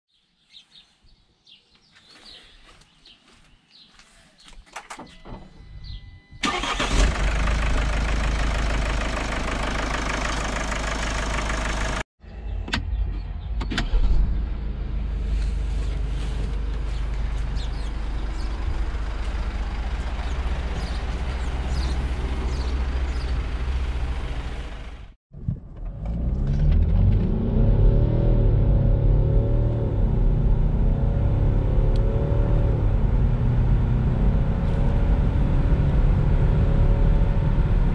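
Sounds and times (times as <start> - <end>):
diesel engine starting: 5.3 - 13.0, 13.6 - 30.2
diesel engine idling: 6.4 - 12.1, 14.8 - 25.2
engine revving while accelerating: 20.0 - 24.7, 25.8 - 37.9.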